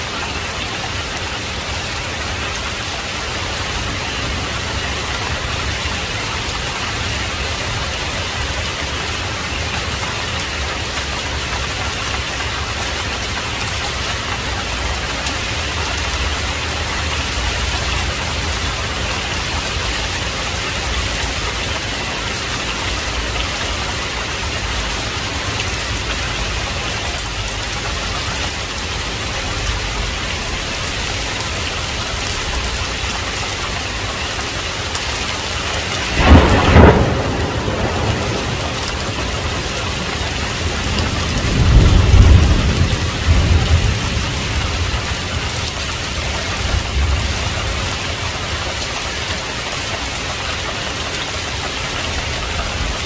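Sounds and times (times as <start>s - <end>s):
heavy rain falling: 0.0s - 53.0s
loud thunder crack: 35.6s - 45.6s.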